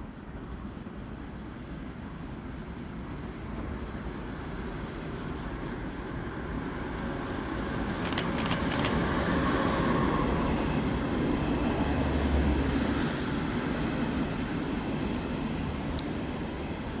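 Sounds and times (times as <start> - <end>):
passenger train rumble: 0.0 - 17.0
sharp ticks: 8.0 - 9.1.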